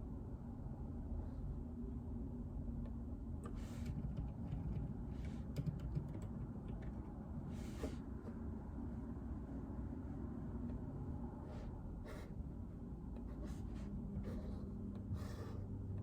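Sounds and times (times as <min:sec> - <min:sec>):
low room hum: 0:00.0 - 0:16.0
quiet keyboard keystrokes: 0:02.9 - 0:07.3.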